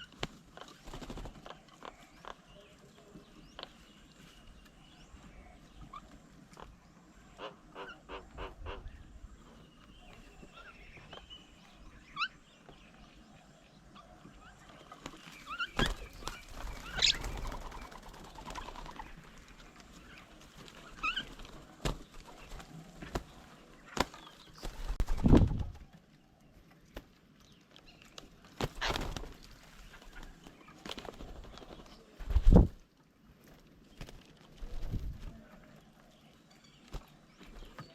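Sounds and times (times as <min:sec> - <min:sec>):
birds chirping and whistling: 0:13.9 - 0:19.1, 0:20.8 - 0:21.5.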